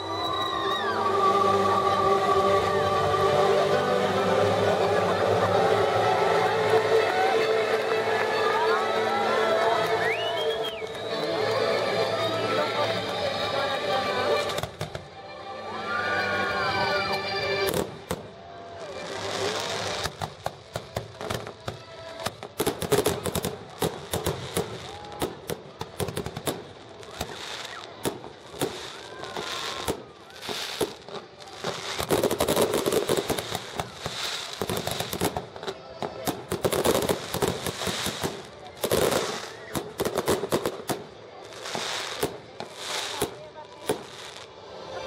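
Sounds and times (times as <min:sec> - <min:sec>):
fireworks bangs and crackles: 0:12.8 - 0:15.1, 0:17.6 - 0:44.6.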